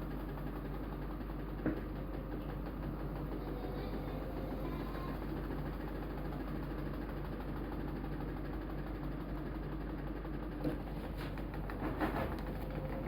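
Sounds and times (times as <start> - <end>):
washing machine motor hum: 0.0 - 13.0.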